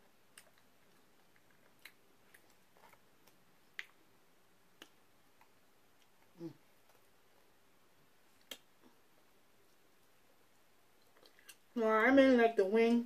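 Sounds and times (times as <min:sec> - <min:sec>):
faint mouth clicks and smacks: 0:00.3 - 0:04.0, 0:04.7 - 0:07.1, 0:08.3 - 0:09.0, 0:09.6 - 0:11.7.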